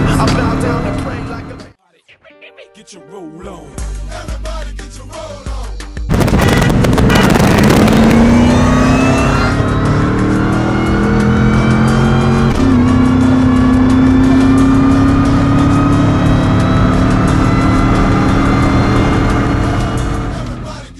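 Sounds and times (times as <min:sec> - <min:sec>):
racing engines at full throttle: 0:00.0 - 0:01.7, 0:06.1 - 0:20.9.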